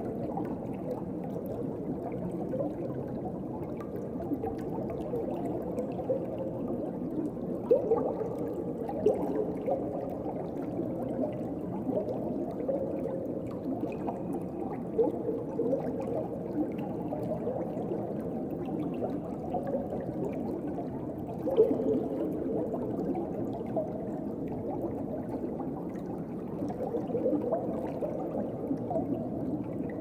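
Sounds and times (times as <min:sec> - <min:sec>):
underwater gurgling and bubbling: 0:00.0 - 0:30.0.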